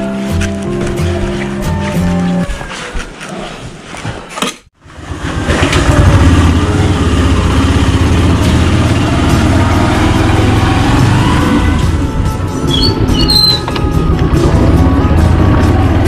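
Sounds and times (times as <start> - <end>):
small motorcycle engine idling: 4.8 - 10.7.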